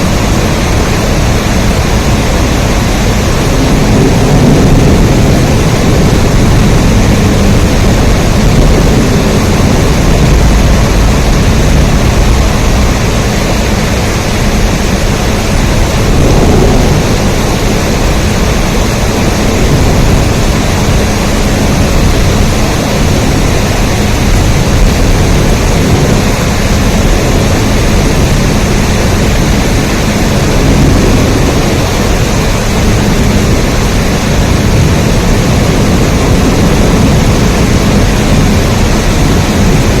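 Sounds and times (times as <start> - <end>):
heavy rain: 0.0 - 40.0.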